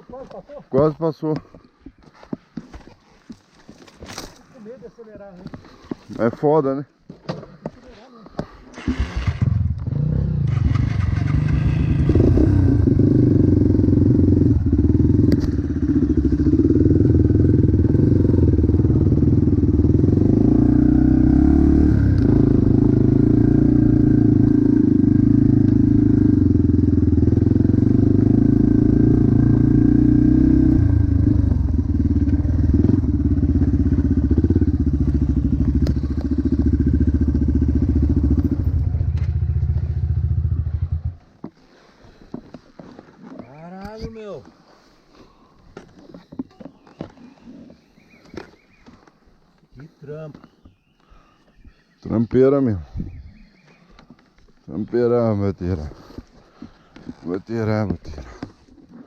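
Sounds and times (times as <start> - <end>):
motocross bike engine revving: 8.8 - 41.2.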